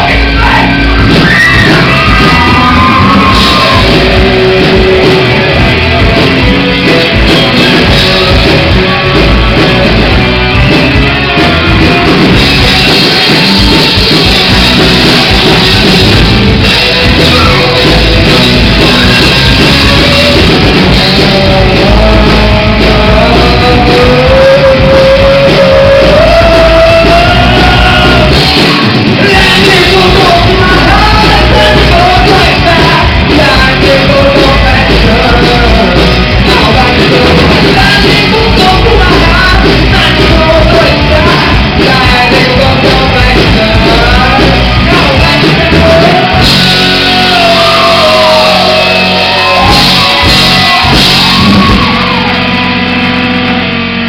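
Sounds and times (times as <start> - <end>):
person shouting singing: 0.0 - 6.9, 16.7 - 52.6
live rock band playing: 0.0 - 54.0.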